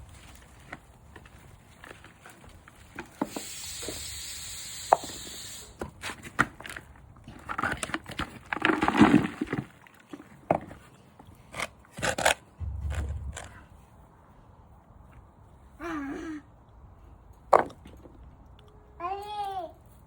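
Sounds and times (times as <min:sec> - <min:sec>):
scraping and rustling soil: 0:05.9 - 0:13.5.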